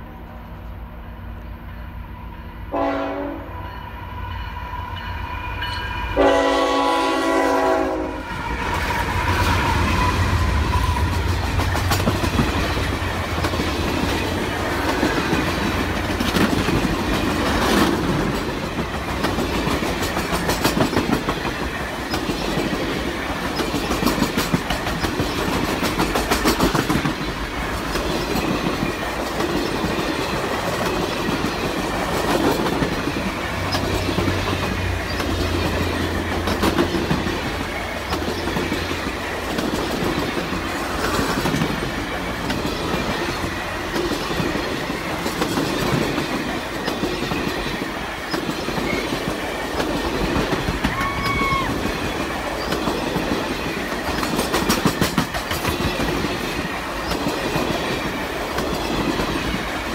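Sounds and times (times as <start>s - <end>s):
train cars rumbling: 0.0s - 59.9s
locomotive horn blasts: 2.7s - 3.6s, 6.2s - 8.2s
wheels clicking over rail joints: 11.0s - 59.9s.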